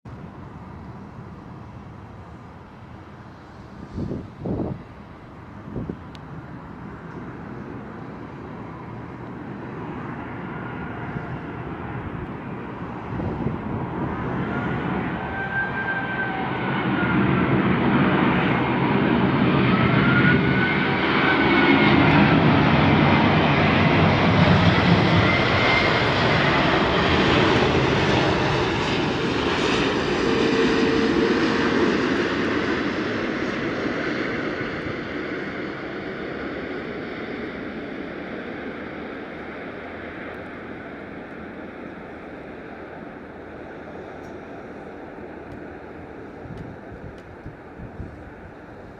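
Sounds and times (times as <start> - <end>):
jet engines rushing: 0.1 - 48.9
whining jet engine tones: 1.6 - 48.9.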